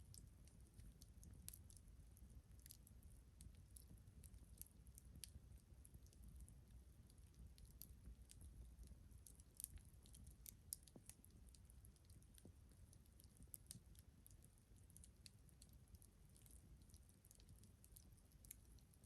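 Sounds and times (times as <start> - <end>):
faint low rumble: 0.0 - 19.0.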